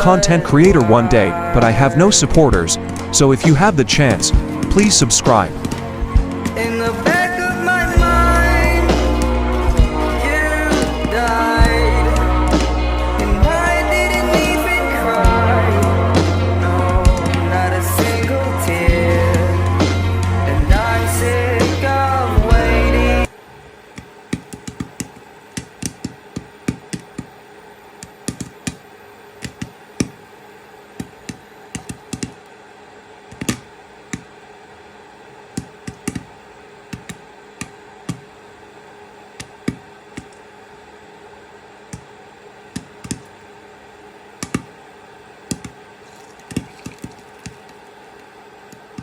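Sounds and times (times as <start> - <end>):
steady low hiss: 0.0 - 49.0
popcorn popping in a pan: 23.9 - 27.4, 28.0 - 28.8, 31.0 - 32.4, 33.3 - 34.3, 35.5 - 38.3, 42.7 - 43.4, 44.4 - 44.8, 45.5 - 47.9.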